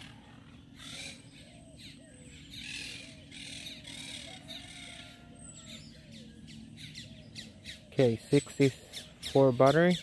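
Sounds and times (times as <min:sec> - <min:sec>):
birds cawing: 0:00.0 - 0:10.0.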